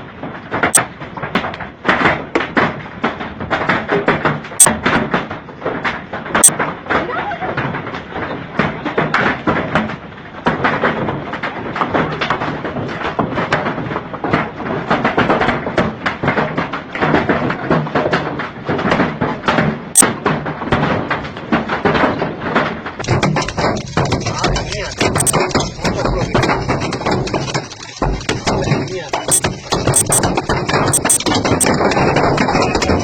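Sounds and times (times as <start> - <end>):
hailstones pelting down: 20.4 - 33.0.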